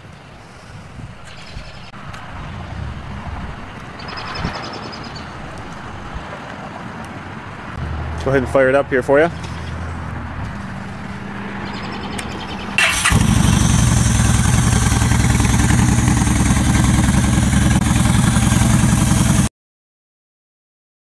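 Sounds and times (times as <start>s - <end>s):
motorcycle engine cranking: 12.8s - 16.6s
motorcycle engine idling loudly: 12.8s - 19.5s.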